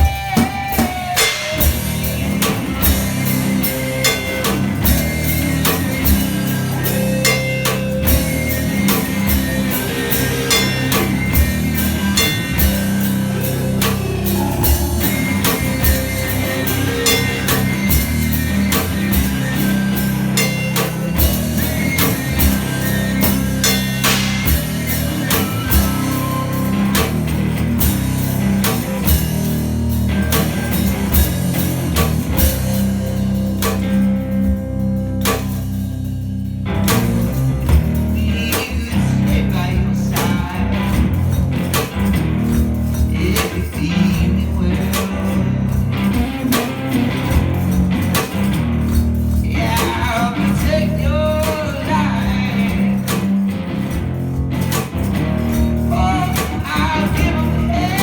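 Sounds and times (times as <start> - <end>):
guitar: 0.0 - 58.0
kick drum and percussion: 39.1 - 46.6.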